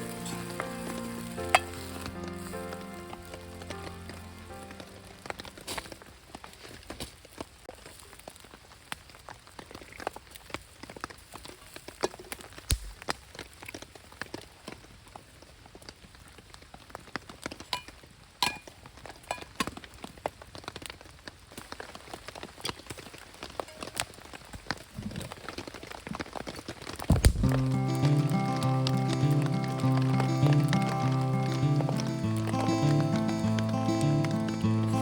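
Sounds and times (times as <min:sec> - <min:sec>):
heavy rain: 0:00.0 - 0:06.6, 0:23.2 - 0:35.0
raindrops tapping a surface: 0:00.0 - 0:34.4.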